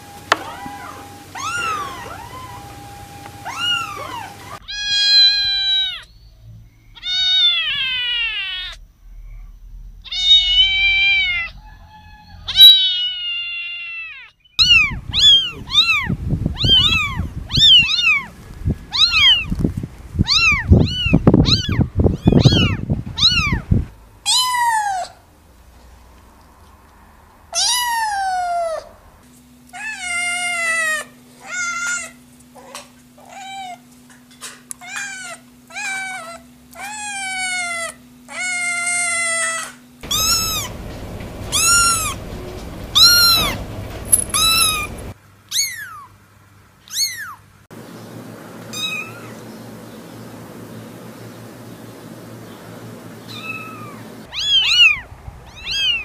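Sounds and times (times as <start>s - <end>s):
kittens and cats meowing: 0.0s - 6.2s, 7.0s - 8.8s, 10.0s - 19.5s, 20.2s - 23.6s, 24.3s - 25.2s, 27.6s - 28.9s, 29.7s - 33.8s, 34.8s - 46.1s, 46.9s - 47.5s, 48.7s - 49.4s, 53.2s - 56.0s
faint steady hum: 0.0s - 13.6s, 14.4s - 56.0s.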